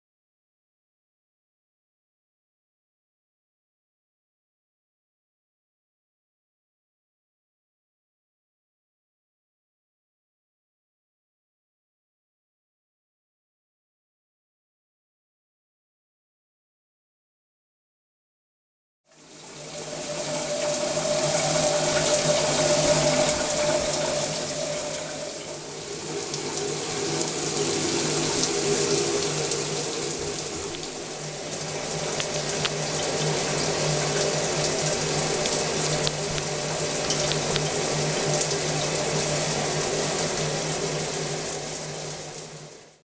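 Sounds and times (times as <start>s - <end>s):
shower water rushing: 19.1s - 43.0s
low hum: 19.4s - 41.5s.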